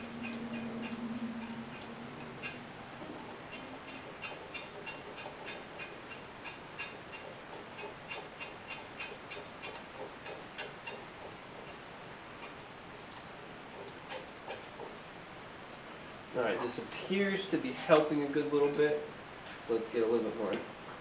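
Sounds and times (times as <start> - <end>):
bearing clicking: 0.0 - 15.0.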